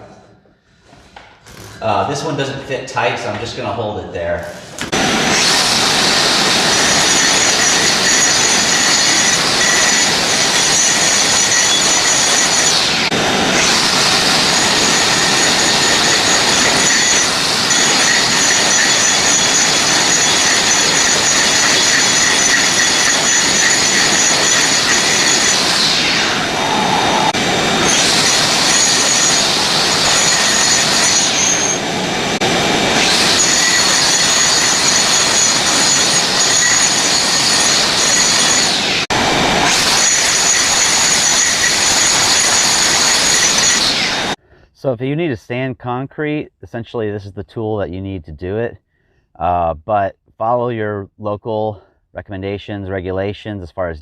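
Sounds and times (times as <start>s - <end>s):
grinder grinding concrete: 4.6s - 31.9s, 32.6s - 44.4s.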